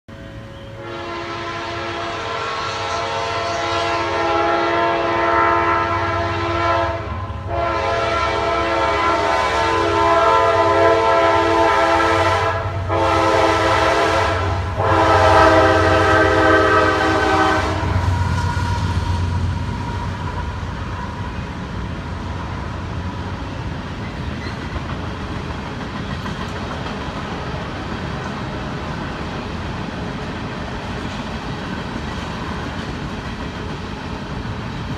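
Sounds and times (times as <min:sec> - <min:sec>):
locomotive engines rumbling: 0:00.1 - 0:34.9
train air horn blasts: 0:00.6 - 0:21.5
freight cars rolling by: 0:13.6 - 0:34.9.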